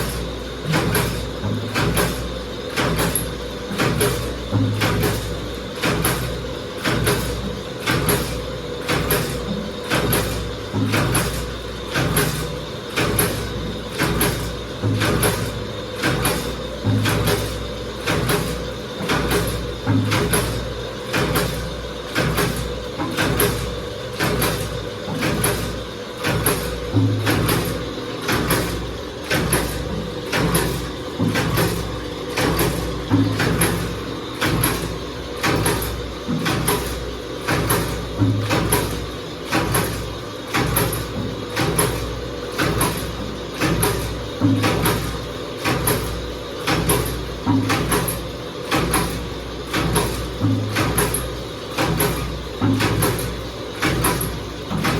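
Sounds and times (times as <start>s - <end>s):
machine press stamping: 0.0s - 54.9s
machine hum: 22.8s - 39.5s.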